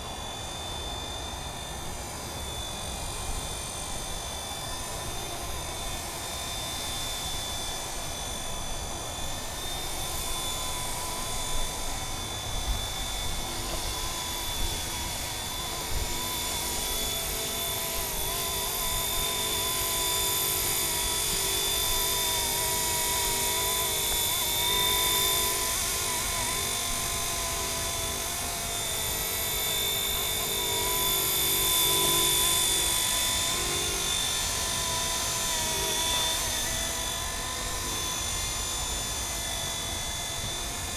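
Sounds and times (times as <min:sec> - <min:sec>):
model helicopter rotor whine: 0:00.0 - 0:40.9.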